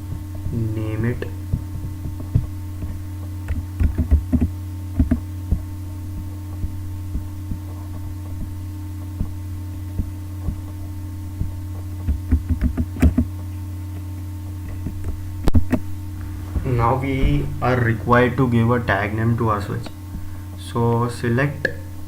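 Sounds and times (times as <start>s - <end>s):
low electrical hum: 0.0s - 22.0s
keyboard and mouse clicks: 2.8s - 5.2s, 12.1s - 13.3s.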